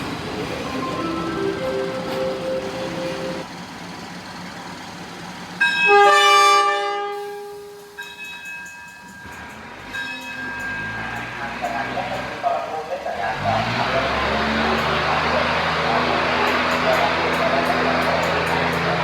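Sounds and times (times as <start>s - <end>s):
diesel railcar running: 0.0s - 19.0s
train horn chord: 0.7s - 3.5s, 5.9s - 7.8s.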